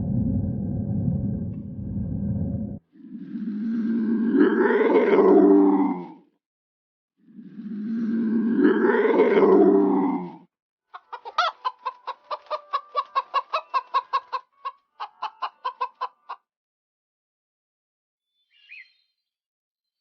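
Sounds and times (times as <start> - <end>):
long low animal call: 0.0 - 6.2, 7.4 - 10.4
chicken clucking rapidly: 10.9 - 16.5.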